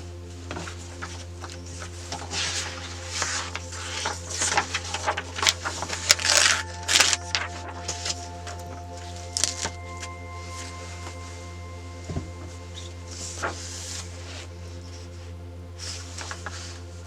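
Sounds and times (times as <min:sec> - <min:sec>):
paper rustling and crinkling: 0:00.5 - 0:08.6.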